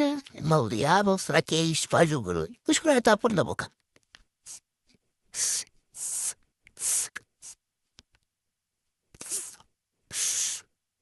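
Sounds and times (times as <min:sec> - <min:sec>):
breathy hisses through whistle: 0:05.4 - 0:07.6, 0:09.2 - 0:10.7.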